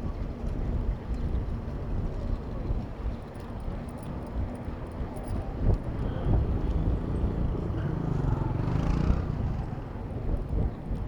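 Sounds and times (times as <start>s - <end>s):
wind rumble on microphone: 0.0s - 11.0s
city road traffic: 5.0s - 11.0s.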